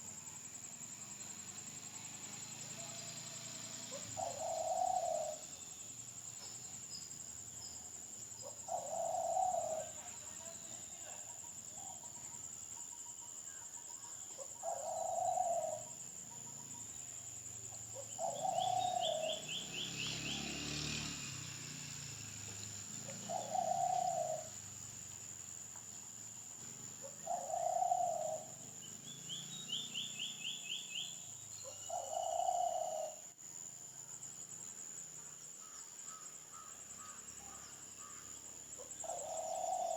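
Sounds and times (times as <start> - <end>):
low hooting bird call: 3.9 - 5.6, 8.4 - 10.1, 14.4 - 16.0, 17.9 - 20.7, 23.1 - 24.6, 27.0 - 33.3, 35.6 - 39.9.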